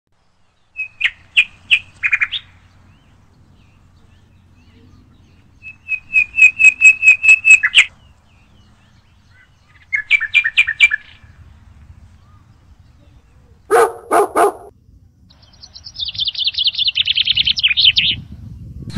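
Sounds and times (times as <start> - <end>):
bird calling in quick notes: 4.7 - 7.9.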